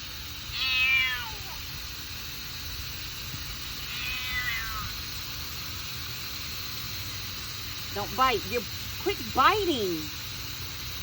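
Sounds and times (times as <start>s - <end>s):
kitten meowing: 0.5s - 1.6s, 3.8s - 5.0s.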